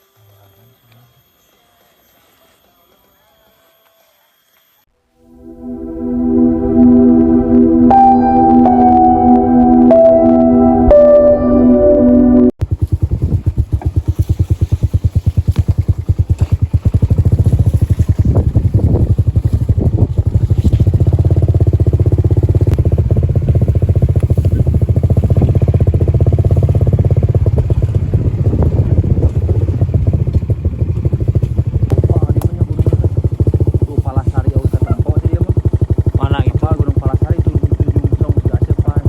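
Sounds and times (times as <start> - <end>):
motorcycle engine running: 12.6 - 39.0.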